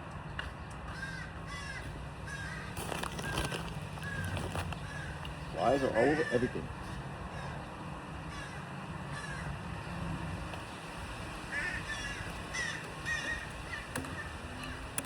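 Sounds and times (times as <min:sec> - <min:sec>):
crows cawing: 0:00.9 - 0:09.9, 0:11.4 - 0:15.0.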